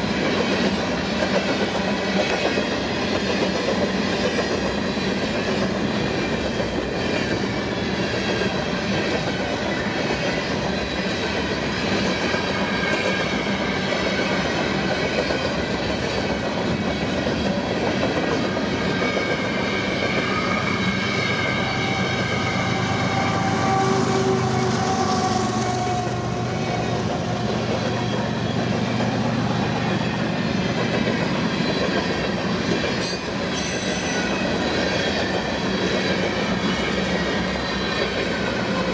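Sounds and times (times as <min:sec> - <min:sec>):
train cars rolling on rails: 0:00.0 - 0:38.9.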